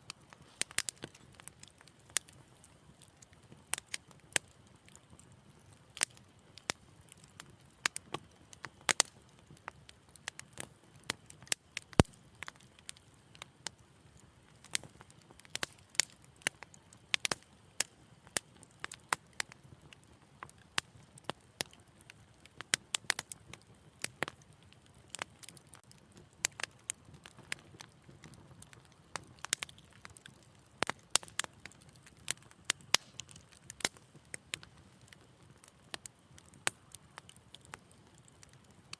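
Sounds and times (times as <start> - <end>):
low rumble of flames: 0.0 - 38.9
wood fire crackling: 0.0 - 38.9.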